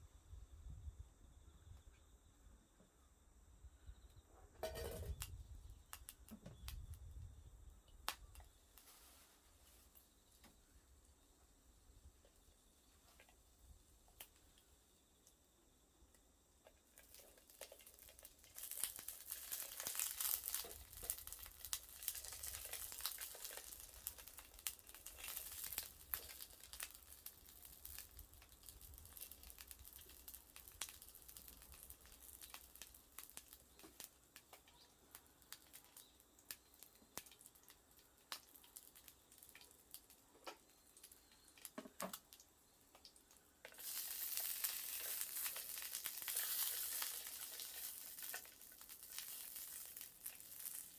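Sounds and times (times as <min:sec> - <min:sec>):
wood fire crackling: 0:04.6 - 0:07.2, 0:07.8 - 0:10.8, 0:16.1 - 0:50.9.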